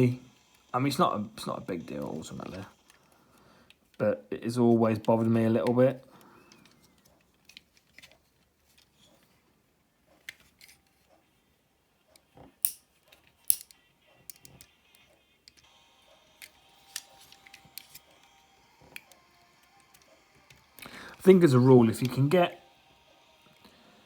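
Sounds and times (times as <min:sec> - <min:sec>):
plastic toy joints clicking: 0:12.2 - 0:15.6.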